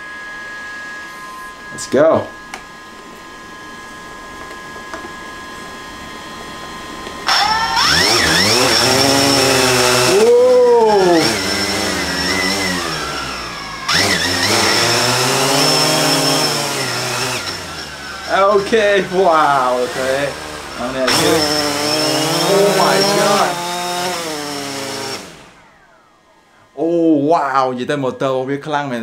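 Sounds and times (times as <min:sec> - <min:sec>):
drone propellers whining: 0:00.0 - 0:26.8.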